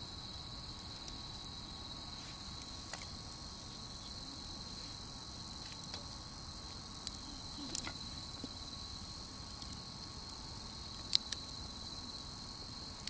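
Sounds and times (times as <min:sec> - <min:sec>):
crickets trilling: 0:00.0 - 0:13.0
wood fire popping: 0:00.1 - 0:13.0.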